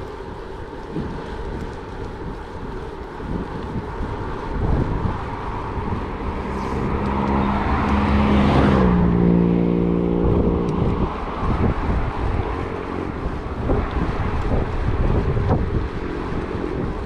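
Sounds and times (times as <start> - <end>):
wind buffeting microphone: 0.0 - 17.0
vehicle engine passing by: 4.2 - 17.0.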